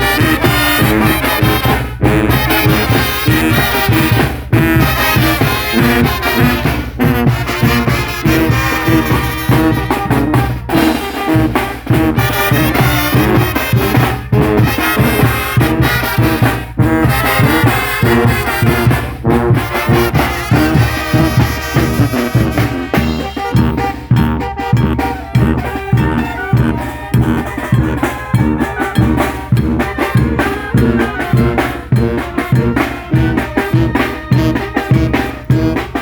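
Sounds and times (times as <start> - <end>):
brass band playing: 0.0 - 36.0
trumpets and trombones: 0.0 - 36.0
bass beat: 11.3 - 33.9.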